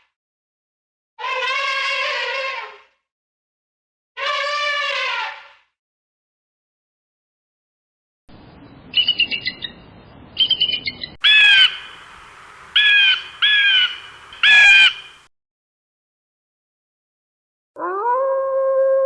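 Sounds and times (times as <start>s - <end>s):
bird chattering: 9.0s - 9.8s, 10.4s - 12.0s, 12.8s - 15.2s
bird harsh squawks: 10.4s - 12.0s, 12.8s - 15.3s.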